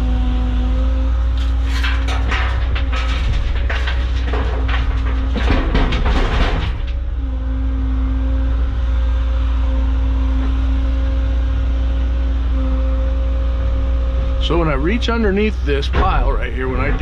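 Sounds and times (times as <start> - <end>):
excavator engine and hydraulics: 0.0 - 17.0
material clattering in bucket: 1.4 - 7.0.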